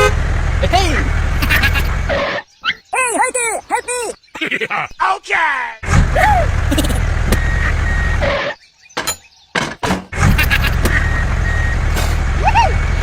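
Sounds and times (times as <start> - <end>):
heavy vehicle engine rumbling: 0.0 - 2.3, 5.8 - 8.4, 10.0 - 13.0.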